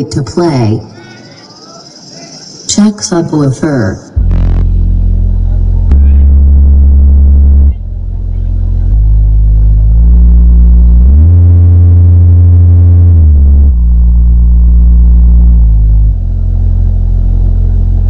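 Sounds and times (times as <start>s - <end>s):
deep sustained bass tones: 4.1s - 18.0s.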